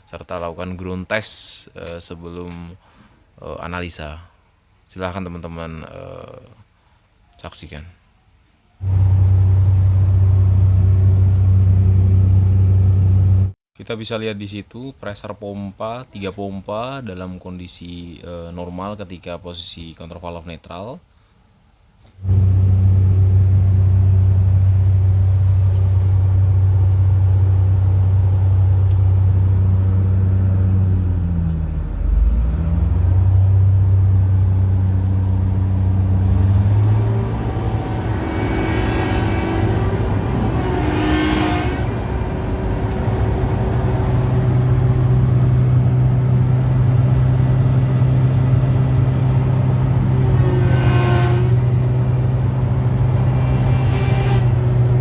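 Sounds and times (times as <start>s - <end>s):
excavator engine running: 8.8s - 13.5s, 22.2s - 55.0s
rising and falling whine: 8.8s - 13.6s, 22.2s - 55.0s.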